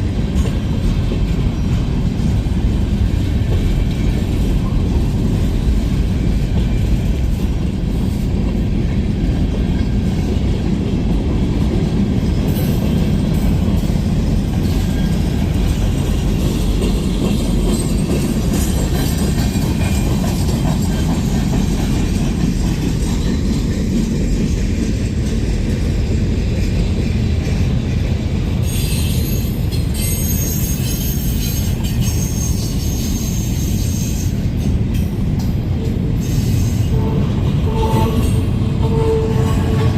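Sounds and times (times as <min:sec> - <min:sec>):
train rumbling on rails: 0:00.0 - 0:39.9
high-pitched wheel squeal: 0:28.7 - 0:34.4.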